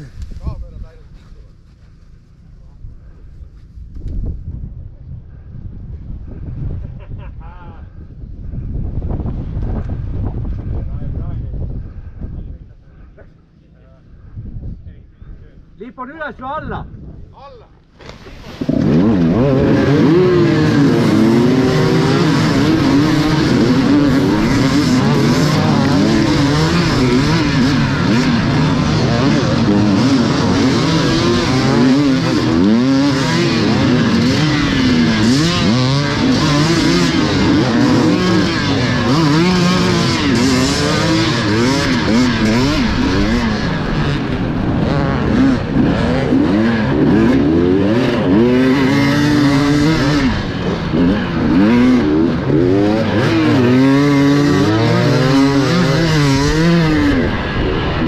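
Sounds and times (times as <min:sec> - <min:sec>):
motorcycles revving hard: 0:18.0 - 0:58.0.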